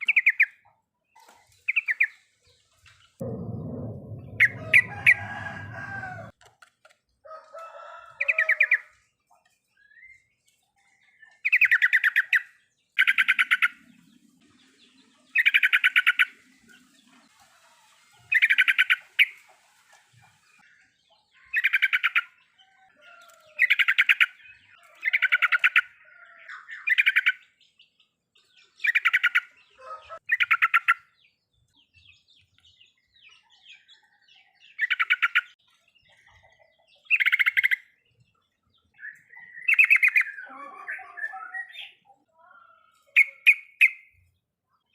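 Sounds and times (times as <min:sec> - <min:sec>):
bird chattering song: 0:00.0 - 0:00.7, 0:11.2 - 0:14.1, 0:21.2 - 0:22.4, 0:28.6 - 0:29.6, 0:30.2 - 0:31.2, 0:34.7 - 0:44.2.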